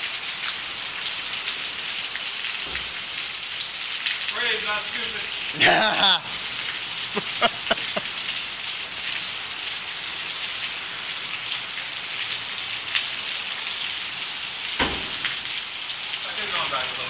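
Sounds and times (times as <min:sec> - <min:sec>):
heavy rain on pavement: 0:00.0 - 0:17.0
thump: 0:14.8 - 0:15.2.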